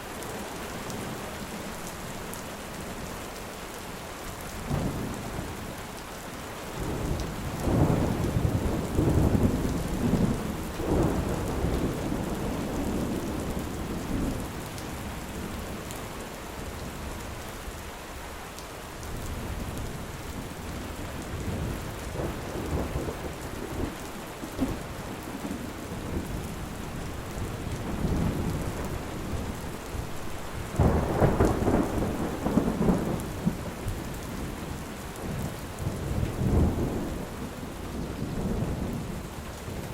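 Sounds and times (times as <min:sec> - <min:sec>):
heavy rain: 0:00.0 - 0:39.9
thunder rumbling: 0:06.8 - 0:14.5, 0:20.4 - 0:34.5, 0:35.2 - 0:39.2.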